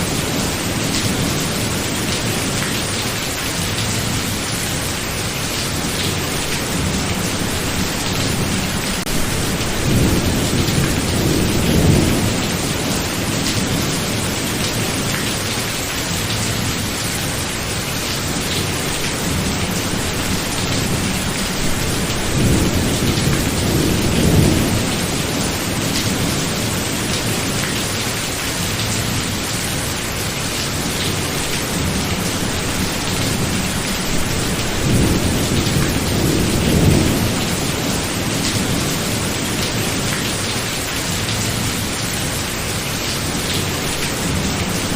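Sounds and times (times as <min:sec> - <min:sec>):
steady rain: 0:00.0 - 0:44.9.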